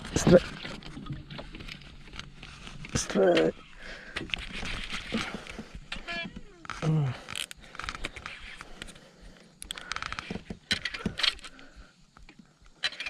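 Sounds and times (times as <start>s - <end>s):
fishing tackle clicking and rattling: 1.3s - 8.9s, 9.6s - 12.2s.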